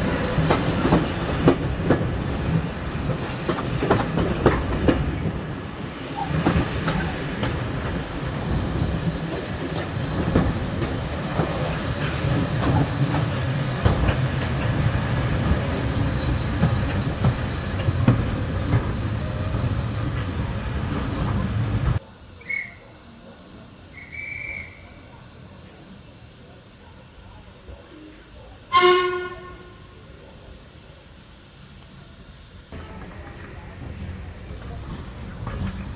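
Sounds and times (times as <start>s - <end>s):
train running on rails: 0.0s - 35.9s
high wheel squeal: 8.1s - 22.9s.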